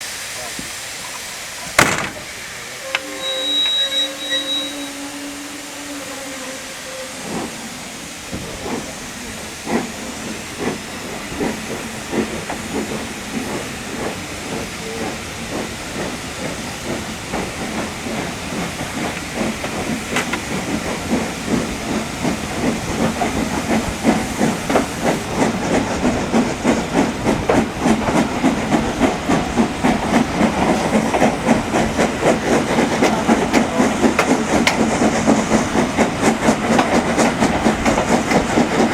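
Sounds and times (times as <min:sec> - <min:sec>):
steam hissing: 0:00.0 - 0:38.9
locomotive exhaust chuffs: 0:00.1 - 0:38.9
steam locomotive whistle: 0:02.1 - 0:08.1.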